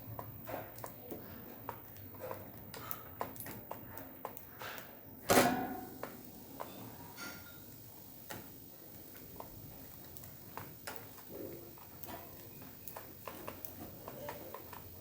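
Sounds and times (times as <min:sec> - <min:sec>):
light clicks and taps: 0:00.0 - 0:05.0, 0:08.3 - 0:15.0.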